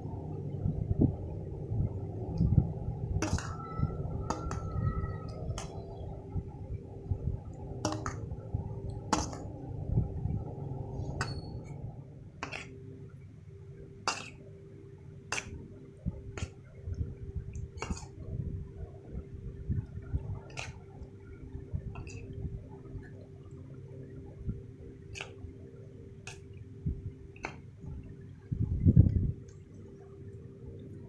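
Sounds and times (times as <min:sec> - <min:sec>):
thick mixture being stirred: 0:03.2 - 0:06.2, 0:12.4 - 0:12.8, 0:17.6 - 0:18.2, 0:20.1 - 0:21.0.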